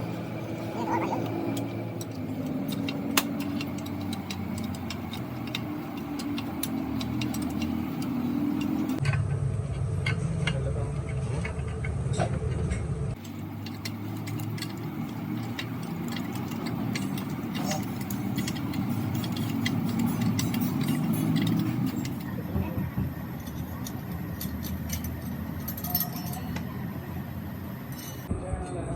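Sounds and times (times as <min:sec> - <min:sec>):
steady low hum: 0:00.0 - 0:28.9
light clicks and taps: 0:01.2 - 0:09.0.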